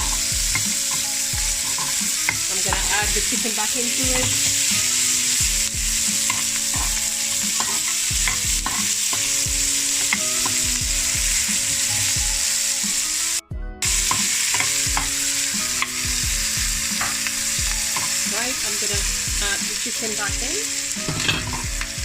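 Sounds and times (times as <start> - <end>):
utensil knocking and scraping pan: 0.0 - 3.3, 6.0 - 9.4, 13.9 - 15.2, 21.0 - 21.8
vegetables sizzling in a frying pan: 0.0 - 22.0.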